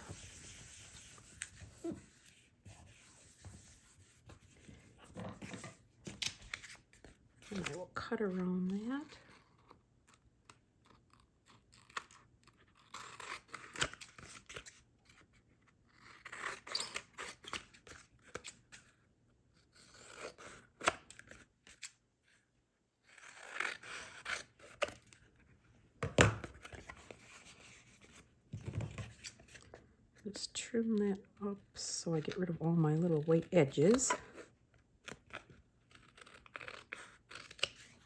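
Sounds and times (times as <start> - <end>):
scissors snipping paper: 35.0 - 38.0.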